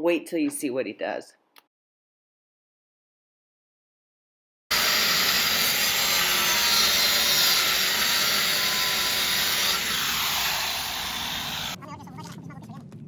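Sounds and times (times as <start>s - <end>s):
power tool grinding marble: 4.7s - 11.8s.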